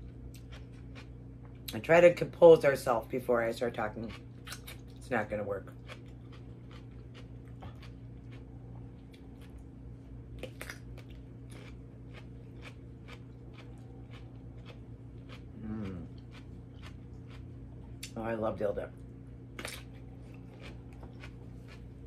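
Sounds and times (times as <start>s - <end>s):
chewing crisp cucumber: 0.0s - 1.8s, 3.7s - 5.0s, 5.6s - 9.7s, 10.3s - 18.2s, 19.6s - 22.0s
steady low hum: 0.0s - 22.0s
person humming: 15.6s - 16.1s.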